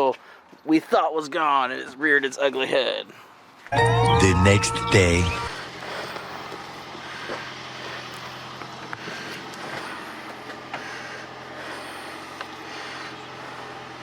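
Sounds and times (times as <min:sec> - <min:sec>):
car engine idling: 0:05.0 - 0:14.0.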